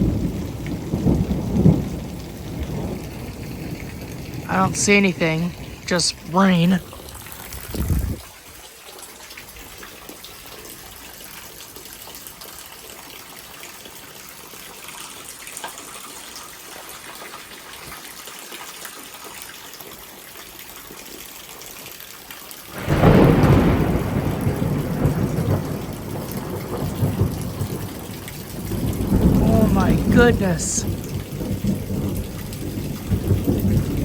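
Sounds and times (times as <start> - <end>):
loud thunder rumble: 0.0 - 8.2, 22.7 - 34.0
heavy rain: 0.0 - 34.0.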